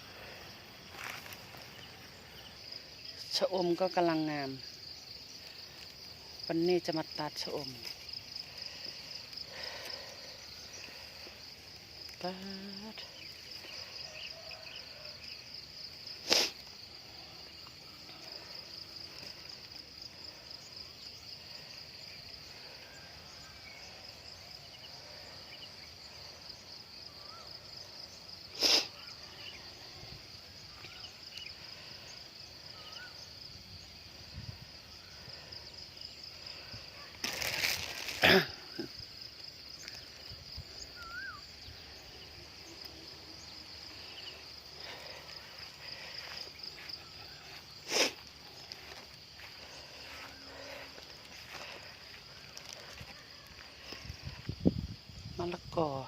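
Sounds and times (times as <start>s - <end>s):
insect chorus: 0.0s - 56.0s
faint bird chirps: 40.8s - 41.7s.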